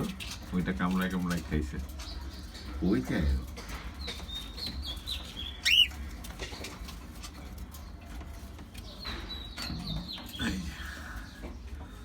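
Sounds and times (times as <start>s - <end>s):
cockatiels chirping: 4.2s - 6.0s.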